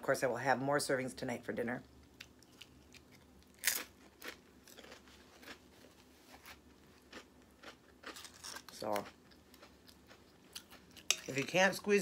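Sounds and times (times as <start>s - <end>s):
chewing crunchy chips: 2.2s - 11.6s.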